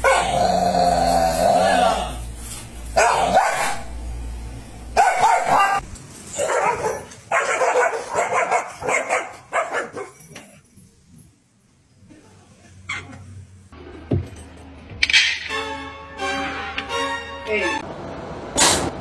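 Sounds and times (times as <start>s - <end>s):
dogs barking: 0.0s - 0.5s, 3.0s - 4.0s, 5.0s - 5.8s, 6.4s - 10.4s.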